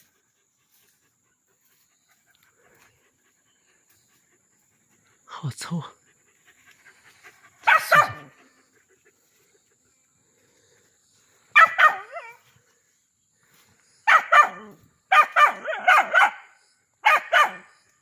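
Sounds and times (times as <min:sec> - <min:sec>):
dog barking: 0:07.6 - 0:08.4, 0:11.5 - 0:12.4, 0:14.0 - 0:17.8.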